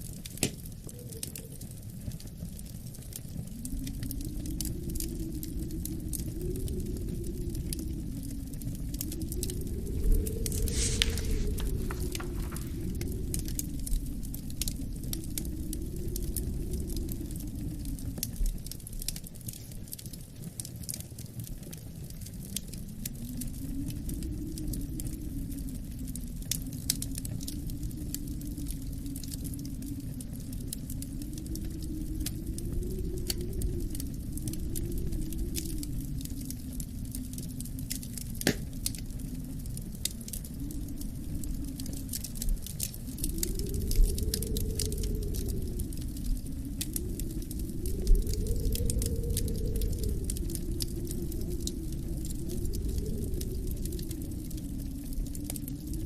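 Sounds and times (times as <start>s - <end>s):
low wind rumble: 0.0s - 56.0s
wood fire crackling: 0.0s - 56.0s
sharp crack of wood: 38.4s - 38.7s.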